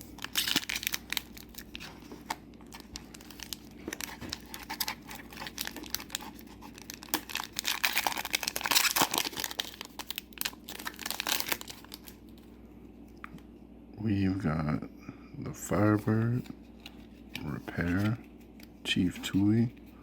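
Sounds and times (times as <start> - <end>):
wrapper crinkling and tearing: 0.0 - 12.4.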